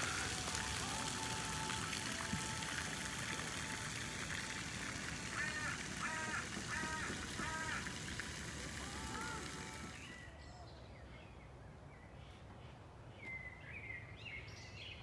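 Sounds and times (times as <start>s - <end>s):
duck quacking: 5.2s - 8.2s.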